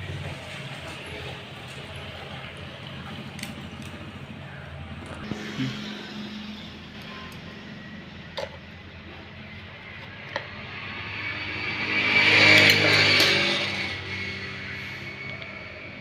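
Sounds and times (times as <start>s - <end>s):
vehicle passing by: 4.0s - 16.0s.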